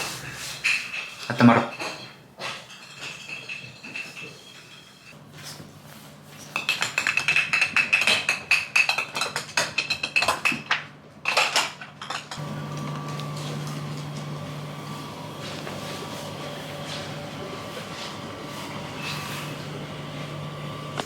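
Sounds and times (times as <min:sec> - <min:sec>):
motor hum: 0:12.4 - 0:21.0
steady high ringing tone: 0:12.4 - 0:21.0.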